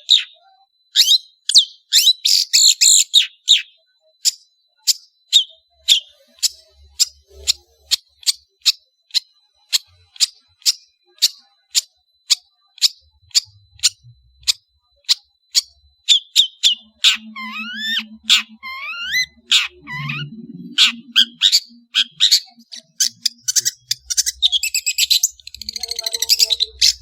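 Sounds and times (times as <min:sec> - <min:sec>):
shrike calling sharp notes: 0:16.5 - 0:27.0.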